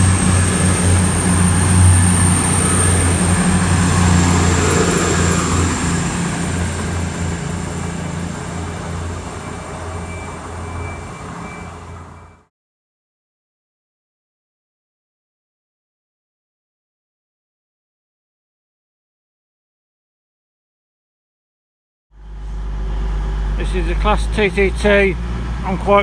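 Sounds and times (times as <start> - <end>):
diesel engines droning: 0.0 - 12.5, 22.2 - 26.0
rail noise: 0.0 - 12.5, 22.2 - 26.0.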